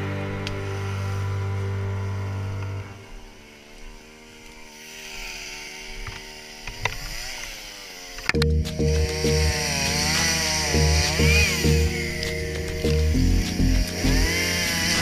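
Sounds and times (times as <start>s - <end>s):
background music: 0.0s - 3.0s, 8.4s - 15.0s
quad bike engine idling and revving: 0.0s - 15.0s.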